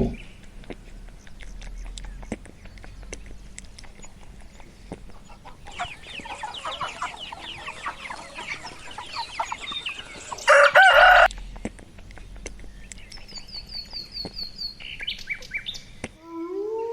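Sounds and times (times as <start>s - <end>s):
chickens clucking: 0.0s - 14.4s
loud drawn-out chicken call: 5.3s - 11.3s.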